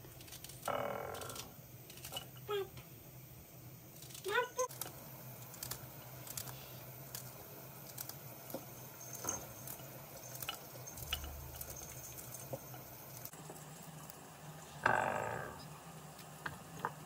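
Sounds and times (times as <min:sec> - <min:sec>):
household objects clicking and tapping: 0:04.0 - 0:13.3.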